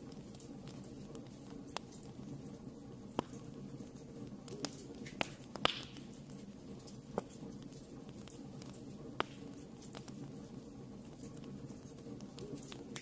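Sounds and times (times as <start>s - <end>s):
fire crackling and popping: 0.0s - 13.0s
low rush of fire: 0.0s - 13.0s.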